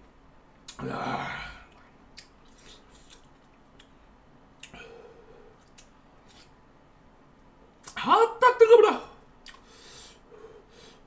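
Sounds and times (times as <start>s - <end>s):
person chewing: 1.6s - 4.0s, 4.6s - 5.0s, 5.6s - 6.6s, 9.4s - 9.7s.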